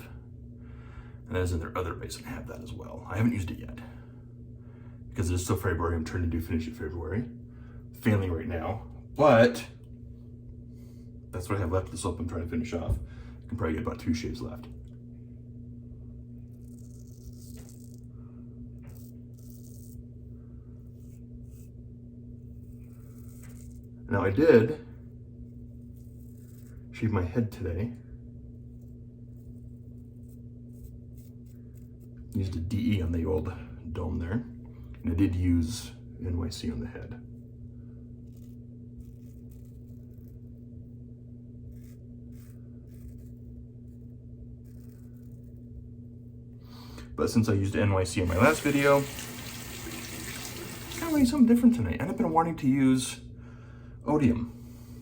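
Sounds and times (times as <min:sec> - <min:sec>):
razor scraping stubble: 0:16.5 - 0:18.0
laundry machine humming: 0:48.0 - 0:51.5.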